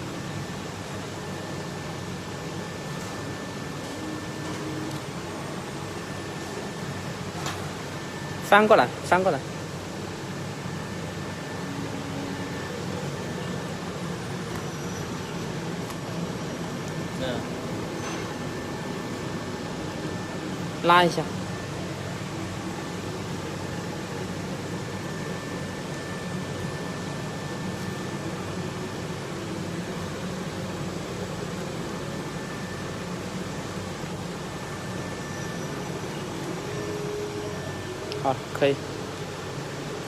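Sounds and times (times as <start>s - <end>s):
faint high whine: 0.0s - 40.0s
workshop machinery hum and hiss: 0.0s - 40.0s.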